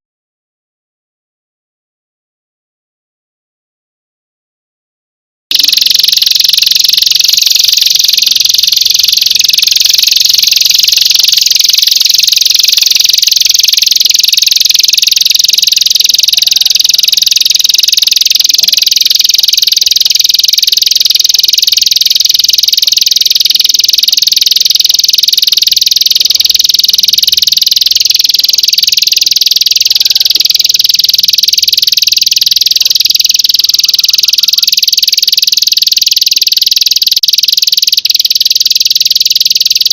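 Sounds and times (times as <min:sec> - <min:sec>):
insect buzzing trill: 0:05.5 - 0:20.2.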